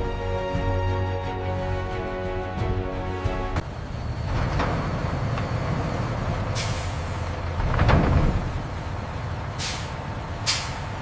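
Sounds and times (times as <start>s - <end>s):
heavy vehicle engine running: 3.1s - 11.0s
air brake hiss: 6.6s - 7.3s, 9.6s - 10.9s.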